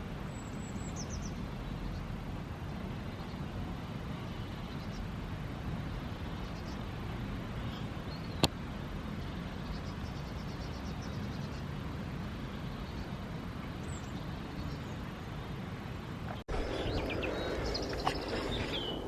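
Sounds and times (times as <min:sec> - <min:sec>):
bicycle road noise: 0:00.0 - 0:19.0
wind rumble: 0:11.7 - 0:19.0.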